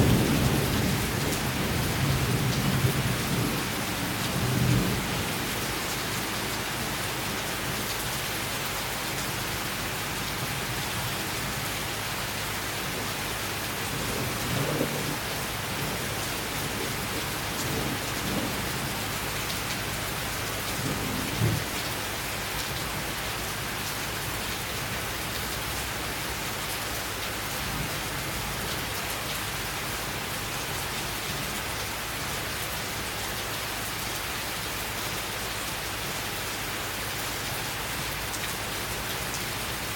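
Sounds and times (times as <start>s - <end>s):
low thunder rumbles: 0.0s - 6.2s, 13.7s - 22.0s
heavy rain downpour: 0.0s - 39.9s.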